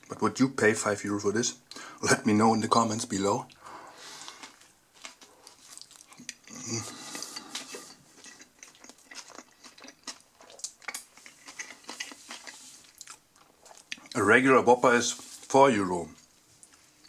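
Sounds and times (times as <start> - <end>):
mouth clicks and squelches: 3.4 - 14.2
person chewing close to microphone: 3.4 - 14.2.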